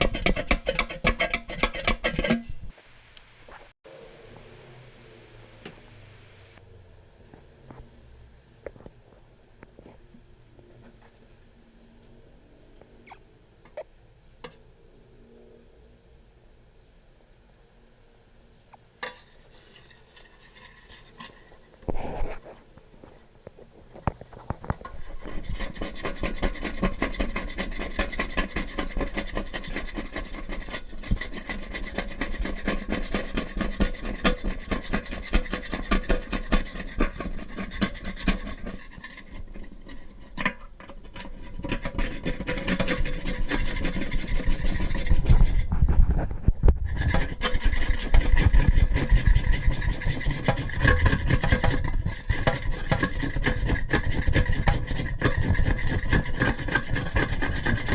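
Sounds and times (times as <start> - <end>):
metal spoon scraping kettle: 0.0 - 2.7, 19.0 - 22.5, 24.5 - 46.1, 46.8 - 57.9.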